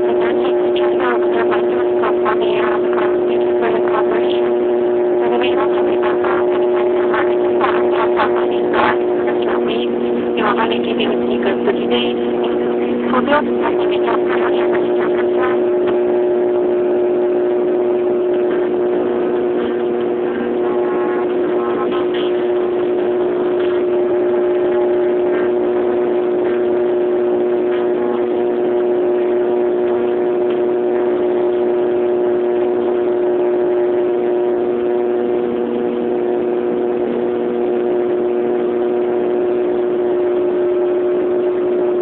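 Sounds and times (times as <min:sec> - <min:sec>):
aircraft engines humming: 0:00.0 - 0:42.0.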